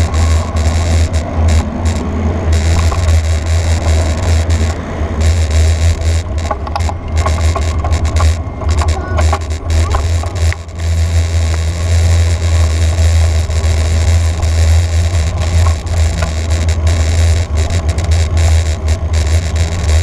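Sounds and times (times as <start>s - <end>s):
small ticks and rattles: 0.0s - 20.0s.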